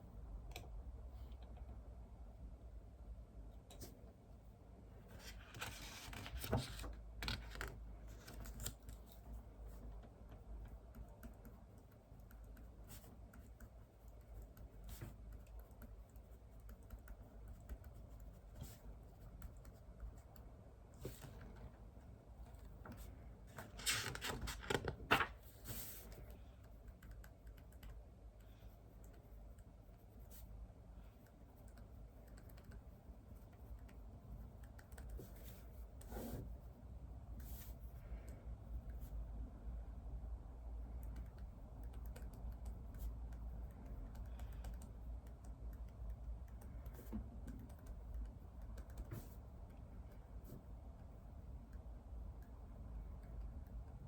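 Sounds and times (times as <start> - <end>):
typing on computer keyboard: 41.0 - 49.1.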